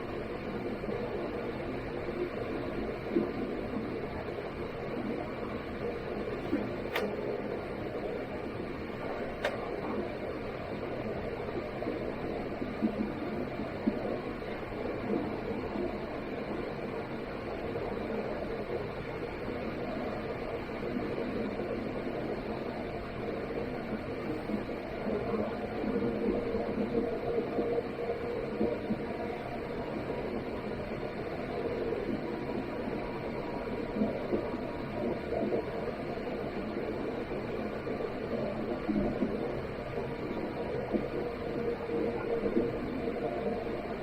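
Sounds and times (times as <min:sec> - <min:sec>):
faint steady hum: 0:00.0 - 0:44.0
aircraft engine and airflow rumble: 0:06.0 - 0:10.2.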